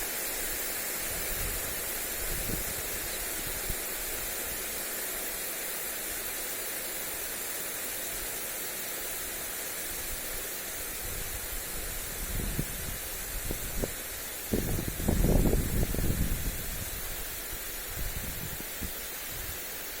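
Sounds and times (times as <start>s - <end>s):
lawn sprinkler spraying water: 0.0s - 20.0s
wind gusts on microphone: 1.1s - 3.8s, 11.0s - 19.6s.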